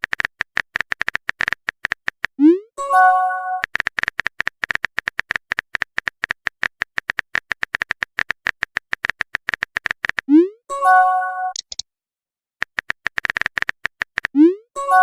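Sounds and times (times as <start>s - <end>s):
rapid typing clicks: 0.0s - 2.4s, 3.6s - 10.3s, 11.5s - 11.8s, 12.6s - 14.4s.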